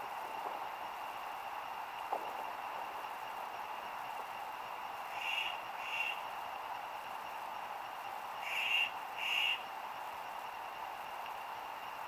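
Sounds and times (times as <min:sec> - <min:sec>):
short bird calls: 0:05.1 - 0:06.2, 0:08.4 - 0:09.6.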